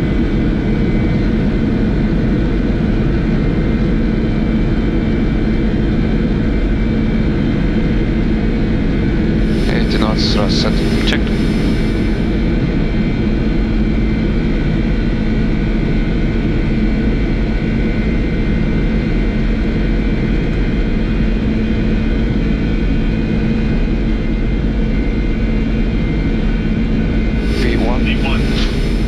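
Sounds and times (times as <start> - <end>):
constant hum: 9.4 - 12.4, 27.4 - 29.0
jet engines roaring: 9.4 - 12.4, 27.4 - 29.0.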